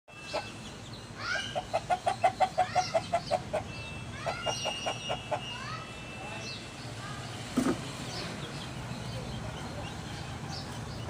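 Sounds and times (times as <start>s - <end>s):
bird clucking call: 0.2s - 0.6s, 1.2s - 5.6s.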